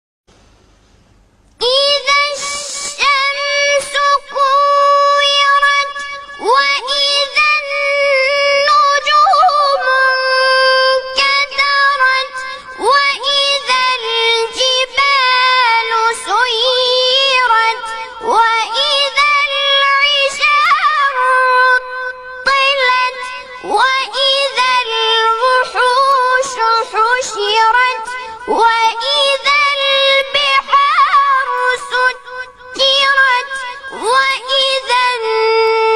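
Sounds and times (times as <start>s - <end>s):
person chanting recitation: 1.6s - 35.9s.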